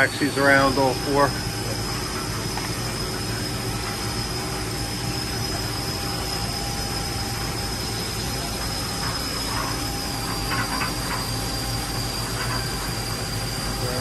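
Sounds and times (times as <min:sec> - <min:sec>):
machining center humming and whining: 0:00.0 - 0:14.0.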